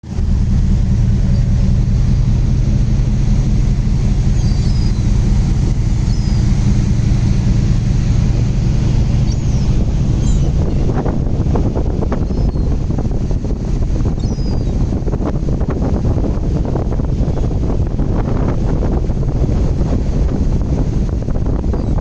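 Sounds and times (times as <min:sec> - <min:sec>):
ship low rumble: 0:00.0 - 0:22.0
wind on microphone: 0:00.0 - 0:22.0
seagulls calling: 0:04.0 - 0:10.9, 0:12.1 - 0:12.8, 0:14.2 - 0:14.8.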